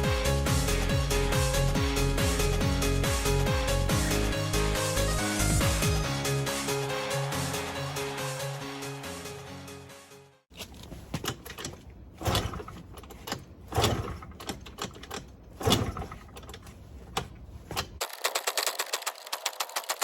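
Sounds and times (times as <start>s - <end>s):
background music: 0.0s - 10.4s
irregular clicks: 11.2s - 20.0s
typewriter clicks rattle: 17.8s - 20.0s.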